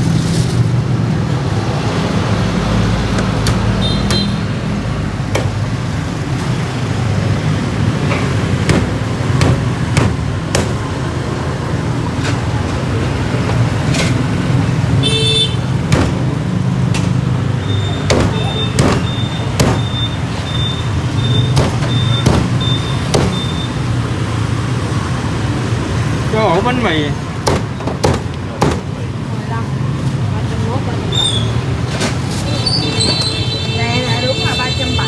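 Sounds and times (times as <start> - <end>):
road traffic passing: 0.0 - 35.0
sharp knocks and clicks: 3.1 - 4.3, 8.0 - 10.9, 15.9 - 17.2, 18.1 - 20.0, 21.5 - 23.6, 27.4 - 29.0.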